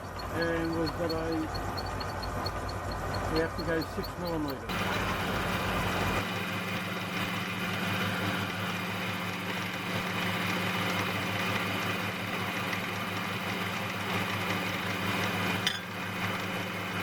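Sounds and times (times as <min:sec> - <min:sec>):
lathe motor humming: 0:00.0 - 0:17.0.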